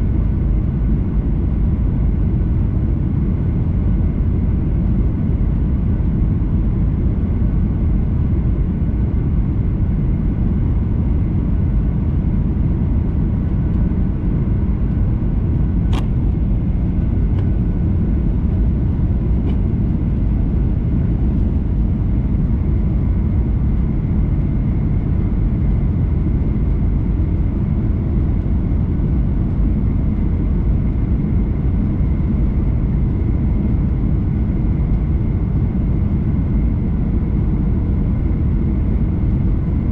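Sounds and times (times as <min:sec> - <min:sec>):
airliner cabin engine rumble: 0:00.0 - 0:39.9
sharp click: 0:15.9 - 0:16.2.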